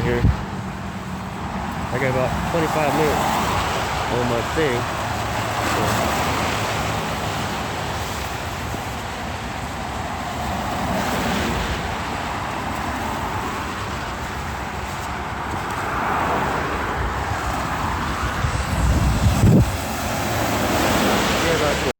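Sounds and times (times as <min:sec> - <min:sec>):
tyres hissing on wet road: 0:00.1 - 0:21.9.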